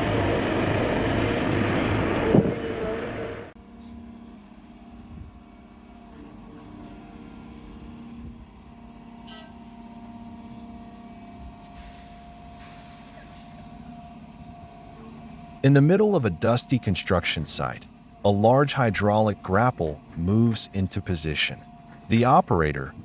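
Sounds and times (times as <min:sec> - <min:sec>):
heavy machine engine running: 0:00.0 - 0:23.0.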